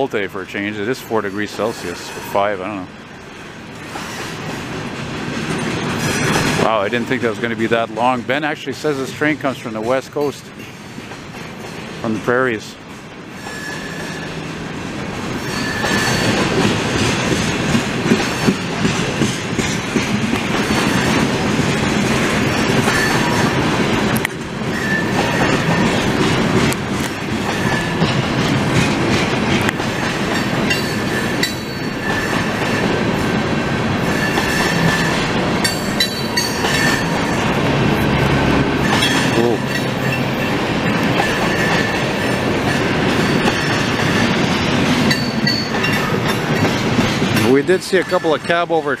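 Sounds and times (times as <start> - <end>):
train wheels rumbling on rail: 0.0 - 49.0
wheels clacking over rail joints: 0.0 - 49.0
wheel squeals: 13.4 - 14.3, 15.4 - 16.4, 24.7 - 25.9, 30.7 - 32.6, 34.0 - 37.4.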